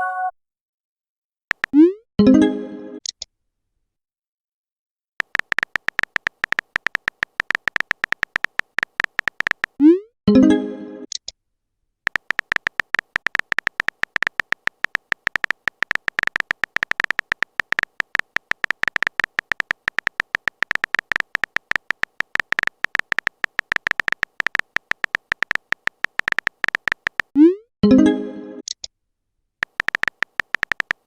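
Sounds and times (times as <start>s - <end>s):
typing clicks: 1.5s - 1.9s, 5.2s - 9.8s, 12.1s - 27.4s, 29.6s - 31.0s.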